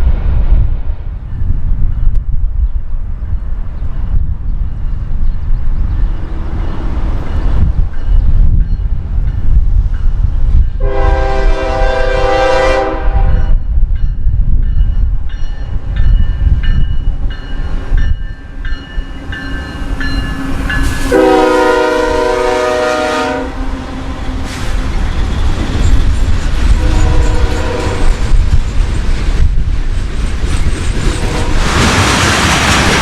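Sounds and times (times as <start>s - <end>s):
passing train rumble: 0.0s - 33.0s
locomotive air horn blasts: 10.8s - 13.6s, 21.1s - 24.5s, 26.8s - 28.2s.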